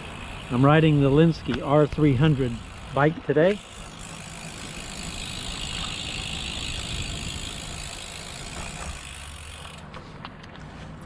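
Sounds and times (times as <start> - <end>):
bicycle freehub ratchet buzzing: 0.0 - 9.9
tyres on road: 0.0 - 11.0
wind on microphone: 5.7 - 7.8.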